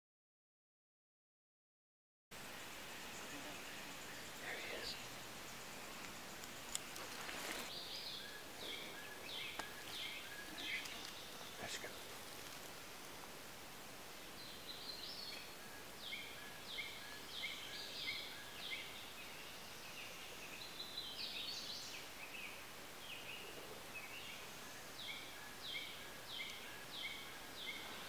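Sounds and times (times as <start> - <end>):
faint woodland background hiss: 2.3 - 28.0
bird singing downward-sliding notes: 2.5 - 12.4.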